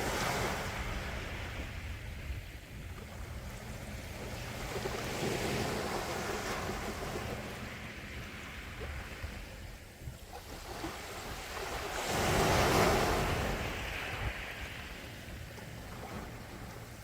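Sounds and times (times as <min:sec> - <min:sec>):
wave breaking on shore: 0:00.0 - 0:02.7, 0:10.3 - 0:17.0.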